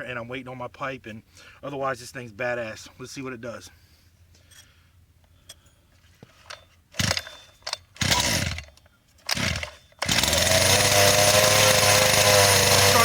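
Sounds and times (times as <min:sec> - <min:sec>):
engine pull-starting: 0:09.3 - 0:13.0
small two-stroke engine running: 0:09.3 - 0:13.0.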